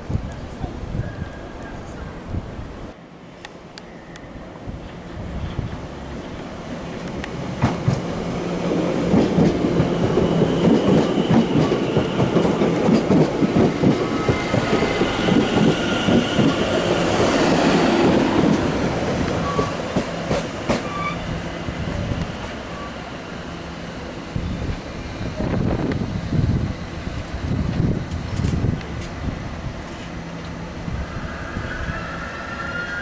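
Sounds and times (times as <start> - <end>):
train wheels clattering: 8.7 - 21.0.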